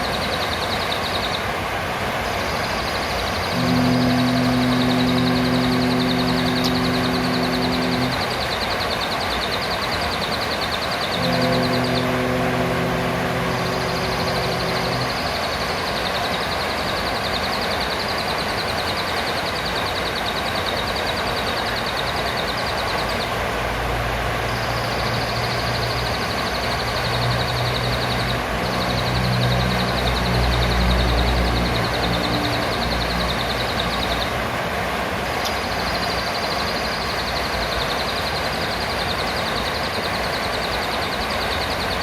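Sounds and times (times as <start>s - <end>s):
low engine-like hum: 0.0s - 42.0s
parrot high-pitched rapid trills: 2.8s - 23.5s, 24.4s - 34.6s.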